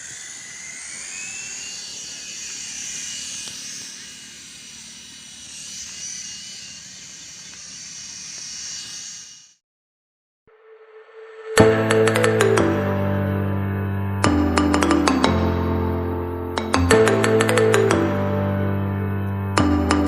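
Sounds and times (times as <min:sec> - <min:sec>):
rc helicopter rotors whirring: 0:00.0 - 0:09.6.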